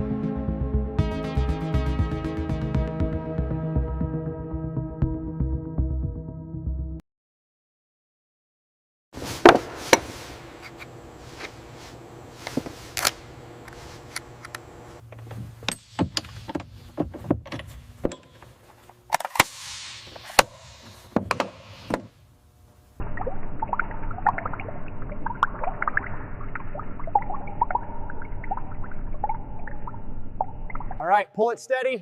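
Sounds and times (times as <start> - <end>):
muffled gurgling noise: 23.0 - 31.0.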